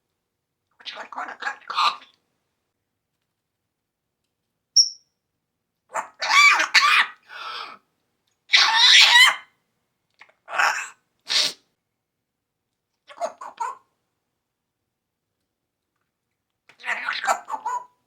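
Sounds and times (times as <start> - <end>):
parrot raspy calls and chatter: 0.8 - 2.2, 5.9 - 7.8, 8.5 - 9.4, 10.2 - 11.5, 13.1 - 13.9, 16.7 - 18.0.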